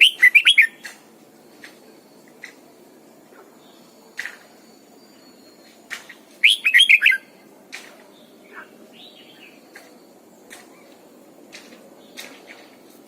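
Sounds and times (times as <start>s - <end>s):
bird warbling: 0.0s - 1.0s, 6.4s - 7.3s
bird chirps and clicks: 0.0s - 2.7s, 4.1s - 4.6s, 5.6s - 8.2s, 9.4s - 12.7s.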